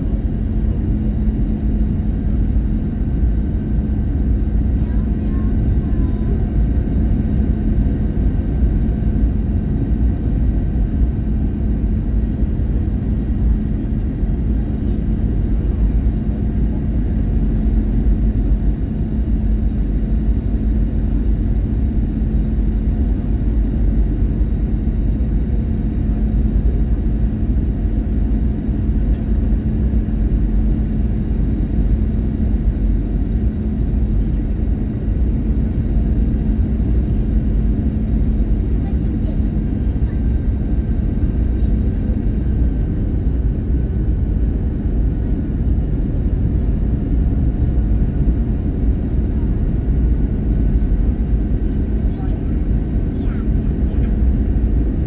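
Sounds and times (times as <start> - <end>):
aircraft cabin engine rumble: 0.0 - 55.0
constant hum: 0.0 - 55.0.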